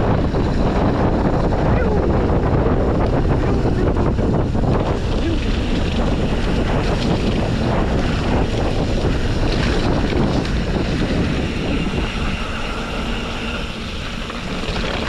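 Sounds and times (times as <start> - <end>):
mountain bike rumbling on trail: 0.0 - 15.0
wind buffeting microphone: 0.0 - 15.0.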